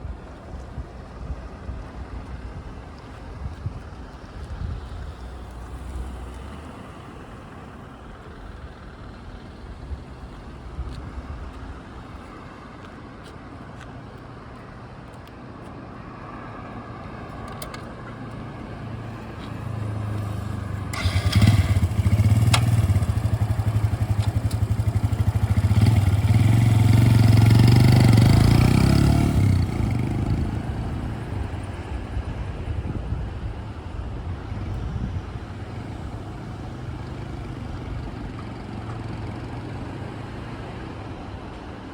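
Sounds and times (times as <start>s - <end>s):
motorcycle engine idling and revving: 17.4s - 41.9s.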